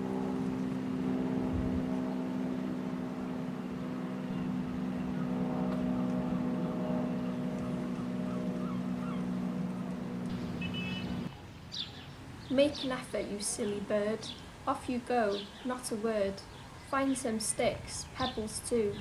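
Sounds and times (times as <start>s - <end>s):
engine drone: 0.0s - 11.3s
faint bird calls: 4.2s - 9.5s, 10.3s - 12.1s.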